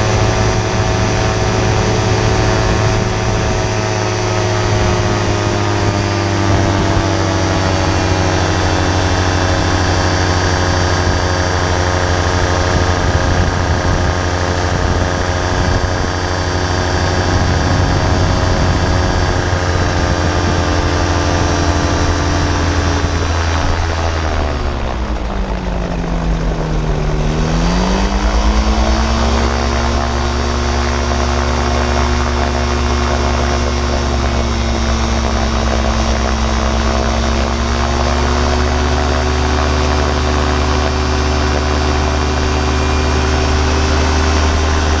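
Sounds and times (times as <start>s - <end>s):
gyrocopter engine and propeller: 0.0s - 45.0s.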